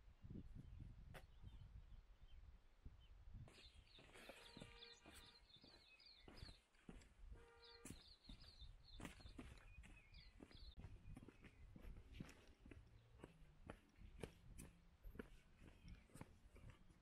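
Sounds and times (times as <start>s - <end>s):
bird chirping: 1.2s - 13.4s
lower bird call: 4.0s - 6.6s.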